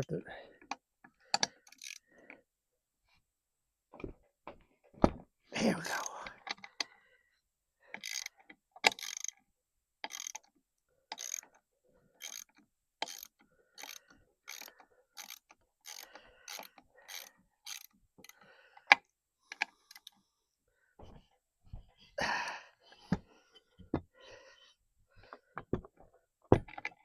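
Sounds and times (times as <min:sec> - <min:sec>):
ratchet wrench clicking: 0:01.4 - 0:02.0, 0:08.0 - 0:09.4, 0:10.0 - 0:10.4, 0:11.1 - 0:11.4, 0:12.2 - 0:18.4.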